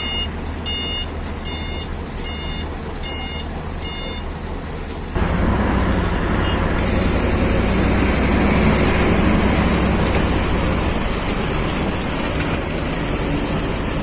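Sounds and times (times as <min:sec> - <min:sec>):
reversing alarm beeps: 0:00.0 - 0:04.3, 0:06.4 - 0:06.7
heavy vehicle engine running: 0:00.0 - 0:14.0.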